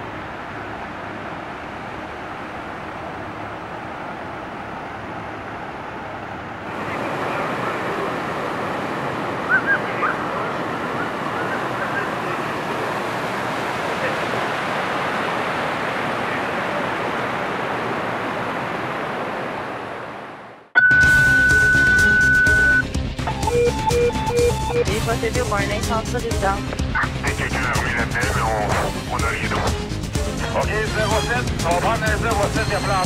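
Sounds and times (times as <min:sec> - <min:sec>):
water rushing over waterfall: 0:00.0 - 0:20.6.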